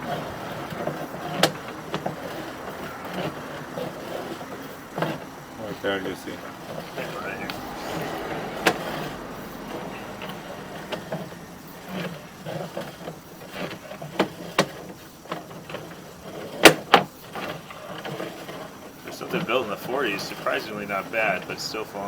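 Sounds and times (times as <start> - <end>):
low rumble: 7.0 - 12.5.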